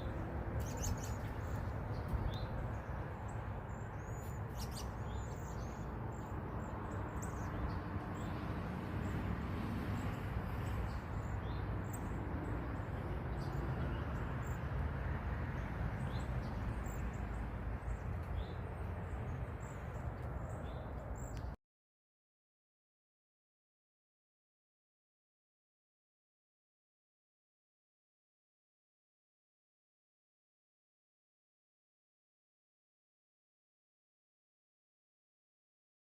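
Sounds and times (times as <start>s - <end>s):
small birds chirping: 0.1s - 8.4s, 10.0s - 14.7s, 15.6s - 21.6s.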